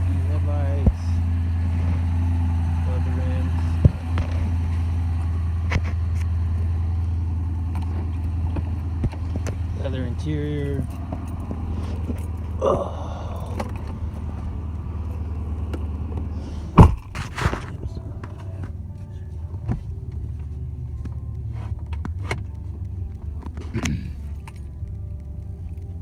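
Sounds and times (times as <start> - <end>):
car engine idling: 0.0 - 26.0
loud sharp thump: 16.8 - 17.8.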